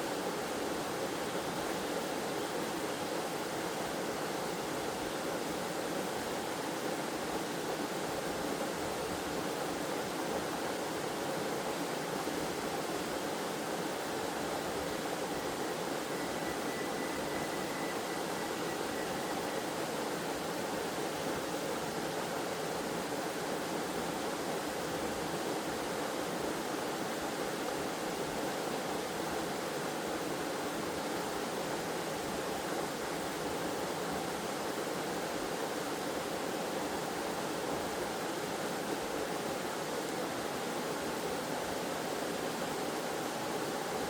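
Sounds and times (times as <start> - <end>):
faint thin high tone: 15.0 - 20.4.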